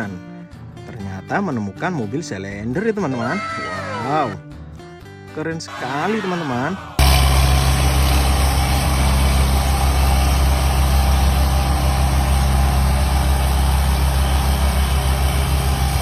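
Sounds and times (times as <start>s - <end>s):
heavy truck engine idling: 7.0s - 16.0s.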